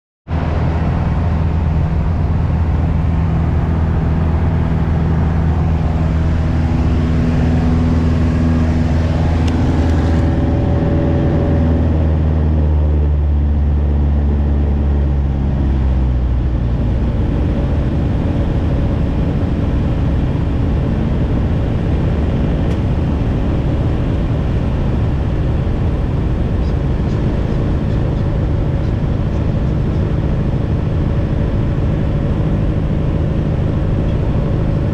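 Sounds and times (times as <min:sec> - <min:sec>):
light aircraft engine and propeller: 0:00.3 - 0:34.9.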